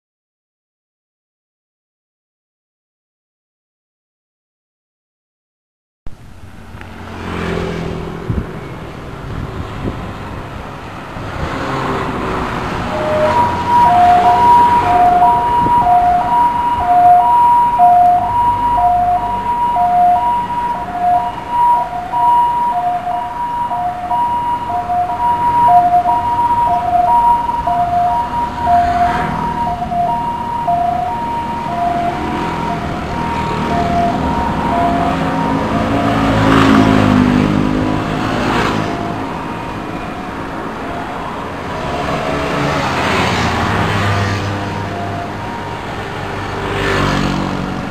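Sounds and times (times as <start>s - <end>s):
vehicle engine rumble: 6.1s - 46.6s
two-tone siren: 7.2s - 8.0s, 11.5s - 47.7s.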